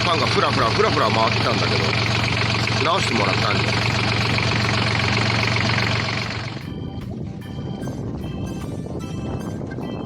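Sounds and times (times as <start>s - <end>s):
tractor engine idling: 0.0s - 10.0s
background music with high notes: 5.4s - 10.0s.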